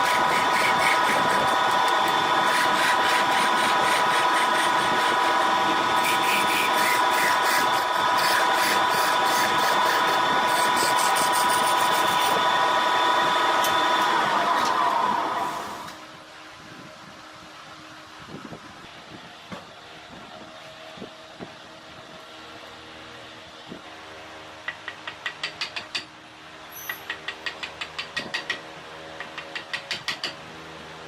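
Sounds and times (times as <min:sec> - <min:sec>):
wood lathe whining: 0:00.0 - 0:16.0.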